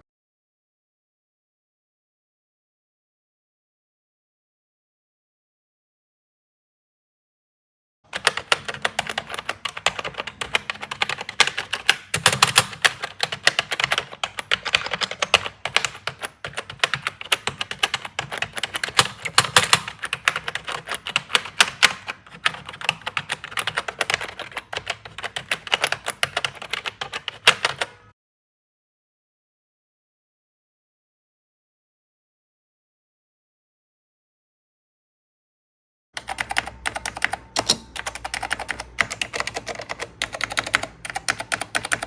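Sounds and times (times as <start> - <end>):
fast typing on keyboard: 8.1 - 28.0, 36.2 - 42.0.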